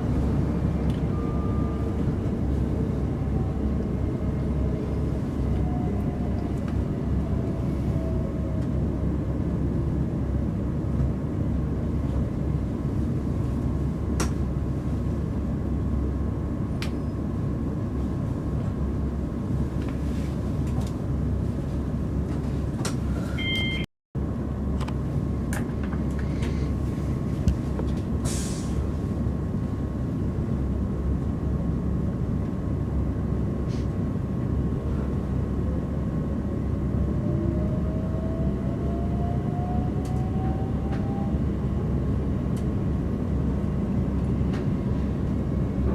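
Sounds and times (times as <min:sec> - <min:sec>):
train wheels rumbling on track: 0:24.7 - 0:45.9.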